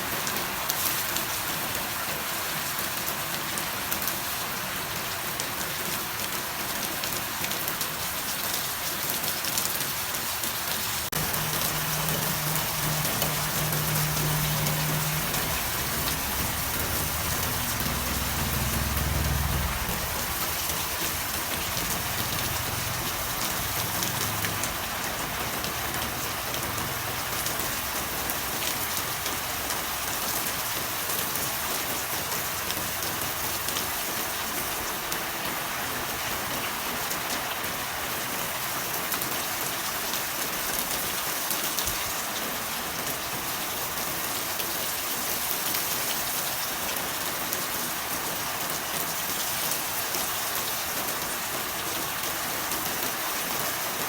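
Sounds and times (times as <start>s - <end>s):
steady rain falling: 0.0s - 54.0s
low rumble: 11.2s - 29.6s.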